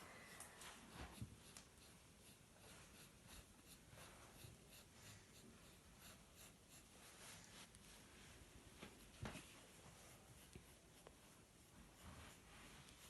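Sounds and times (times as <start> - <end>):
pencil scratching on paper: 0.7 - 7.8, 10.1 - 13.0.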